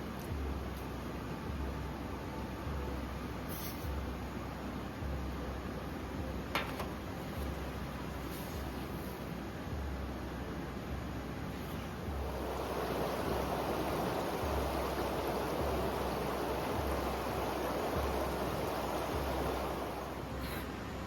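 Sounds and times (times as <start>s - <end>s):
river water rushing: 12.1s - 20.5s.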